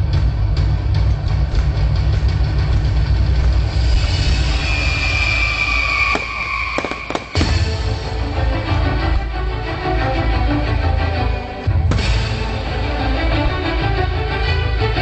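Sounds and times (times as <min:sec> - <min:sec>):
firework whistle: 0:04.0 - 0:07.9
fireworks bursting: 0:04.7 - 0:08.0.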